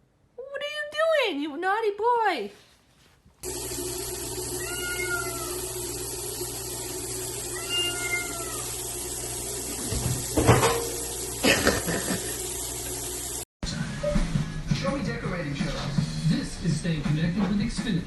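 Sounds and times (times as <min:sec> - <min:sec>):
cat meowing: 0:04.6 - 0:05.6, 0:07.5 - 0:08.7.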